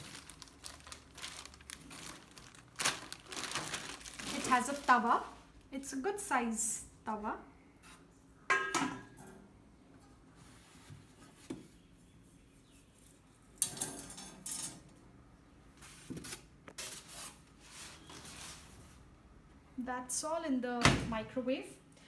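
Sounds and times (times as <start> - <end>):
scraping and rustling: 0.0 - 5.4.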